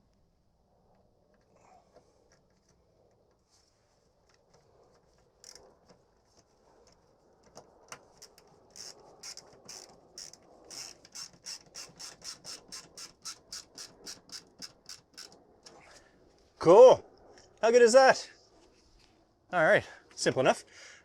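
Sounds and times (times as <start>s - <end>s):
hand ratchet clicking: 8.2s - 15.4s.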